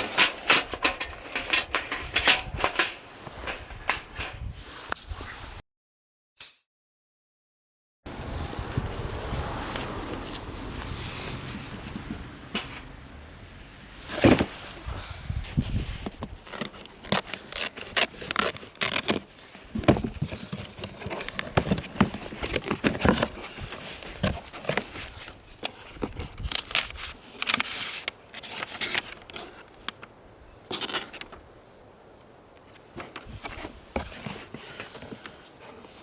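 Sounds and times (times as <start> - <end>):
crackling handling noises: 0.0 - 5.1, 14.0 - 36.0.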